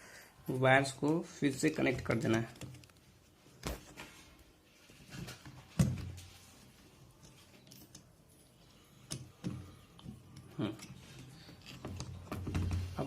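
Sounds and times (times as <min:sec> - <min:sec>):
handling knocks and clicks: 0:01.0 - 0:04.0.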